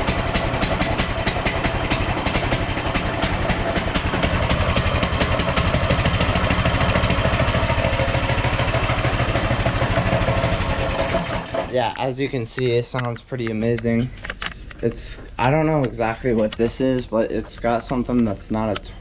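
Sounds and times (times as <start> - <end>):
small engine idling: 0.0 - 11.7.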